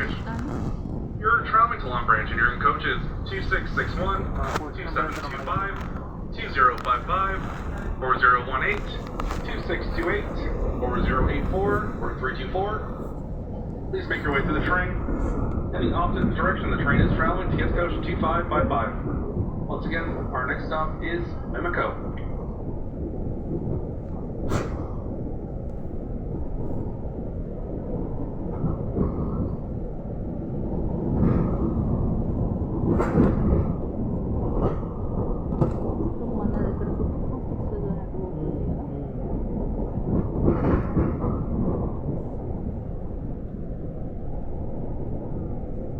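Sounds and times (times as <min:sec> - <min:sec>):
loud rushing noise: 0:00.0 - 0:13.2
train rumbling on track: 0:00.0 - 0:45.9.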